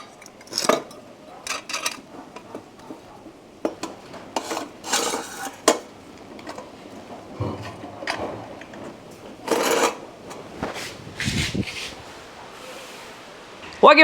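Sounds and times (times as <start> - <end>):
light metal clinks and knocks: 0.0 - 6.8.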